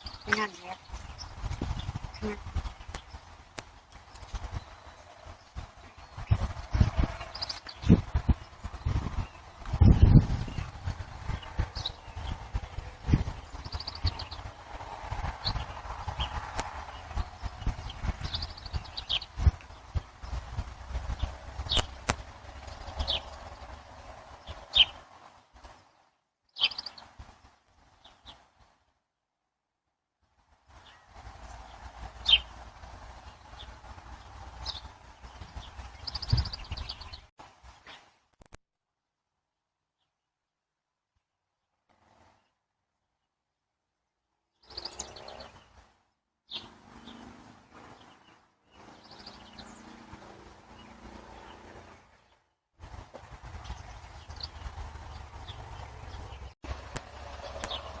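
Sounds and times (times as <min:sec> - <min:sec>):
bird chirping: 0:00.0 - 0:03.4, 0:04.0 - 0:14.5, 0:15.4 - 0:20.4, 0:22.6 - 0:23.6, 0:24.4 - 0:25.0, 0:25.9 - 0:27.1, 0:30.8 - 0:32.6, 0:33.2 - 0:38.0, 0:44.5 - 0:45.8, 0:46.5 - 0:50.1, 0:53.6 - 0:56.6, 0:57.4 - 0:58.0
low rumbling: 0:00.0 - 0:24.9.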